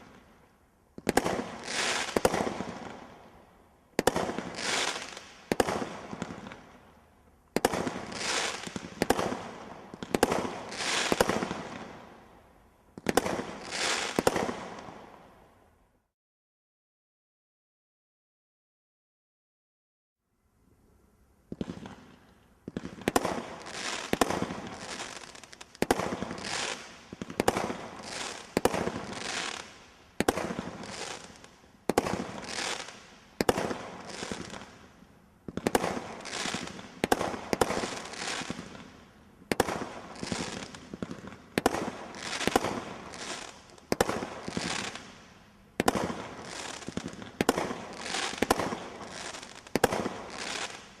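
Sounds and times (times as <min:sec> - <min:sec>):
firework shots banging and hissing: 0:01.0 - 0:03.2, 0:04.0 - 0:06.8, 0:07.5 - 0:12.1, 0:13.0 - 0:15.2, 0:21.5 - 0:34.8, 0:35.4 - 0:51.0.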